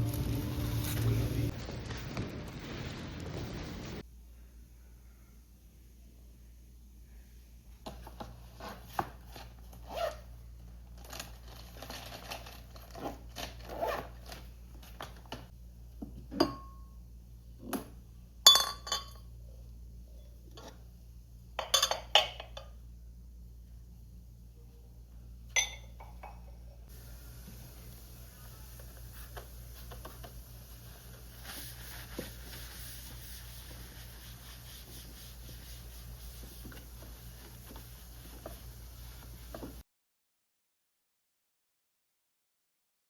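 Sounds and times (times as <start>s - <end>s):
steady high hiss: 26.9s - 39.8s.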